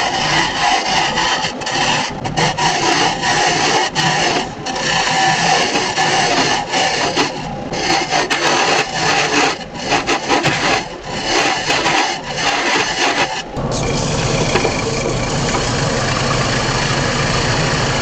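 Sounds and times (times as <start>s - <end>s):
hollowing tool scraping wood: 0.0s - 13.6s
wood lathe humming: 0.0s - 18.0s.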